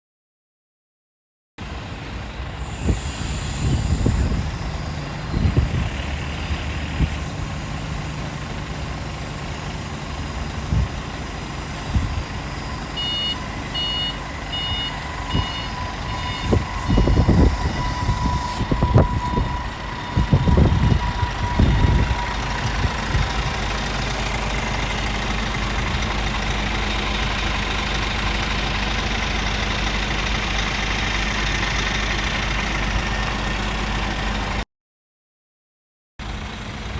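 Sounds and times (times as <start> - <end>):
diesel truck engine: 1.6 - 34.6, 36.2 - 36.9
high beeps: 12.6 - 22.4.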